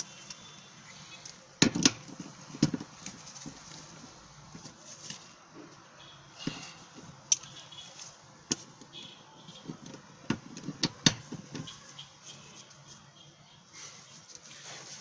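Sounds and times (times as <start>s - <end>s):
hand tools clicking and knocking: 1.6s - 3.5s, 9.7s - 11.7s.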